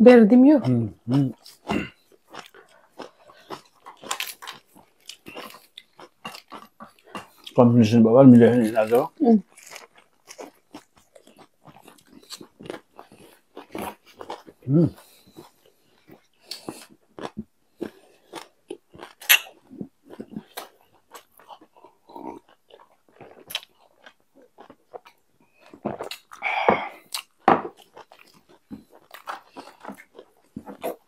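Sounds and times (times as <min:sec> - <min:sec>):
chewing and wet mouth sounds: 0:00.5 - 0:31.0
mouth clicks and smacks: 0:08.7 - 0:21.9.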